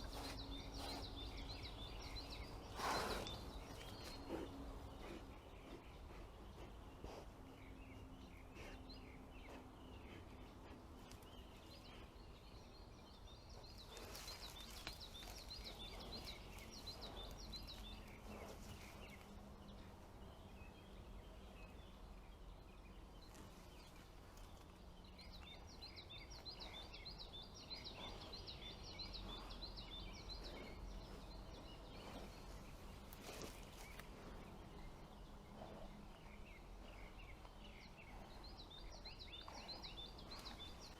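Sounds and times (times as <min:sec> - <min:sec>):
rapid high repeated birdsong: 0:00.0 - 0:40.9
songbirds chirping: 0:00.0 - 0:40.9.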